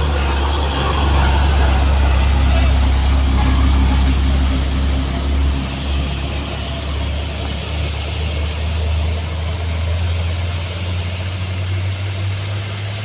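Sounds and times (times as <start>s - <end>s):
truck diesel engine droning: 0.0s - 13.0s.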